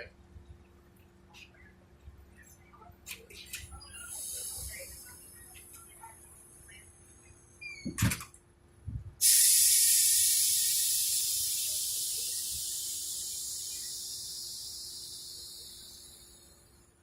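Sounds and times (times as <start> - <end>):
loud hiss: 4.0 - 5.4, 9.2 - 17.0.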